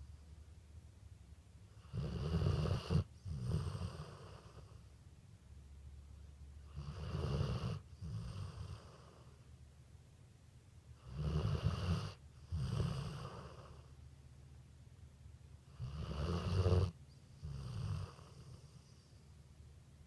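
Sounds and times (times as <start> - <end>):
dog snoring: 1.7 - 4.9, 6.6 - 9.4, 11.0 - 14.0, 15.6 - 19.1.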